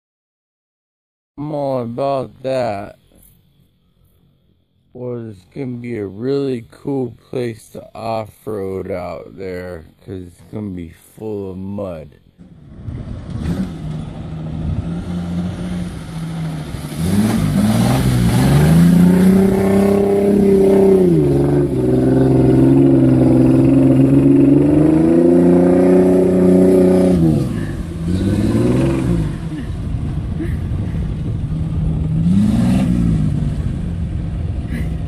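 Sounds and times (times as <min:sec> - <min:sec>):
engine revving: 0:12.4 - 0:35.0.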